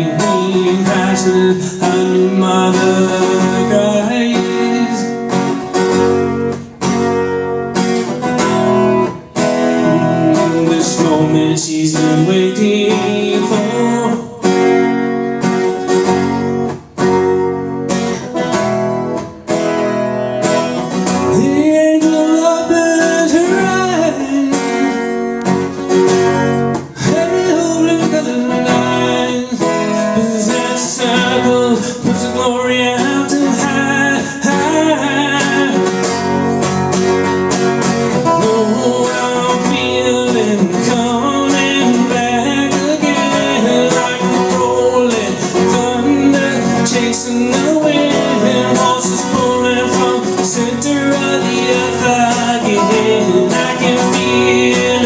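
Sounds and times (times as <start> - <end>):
person singing: 0.0 - 5.5, 9.2 - 14.9, 20.2 - 25.4, 26.8 - 36.6, 38.1 - 55.0
acoustic guitar strumming: 0.0 - 55.0.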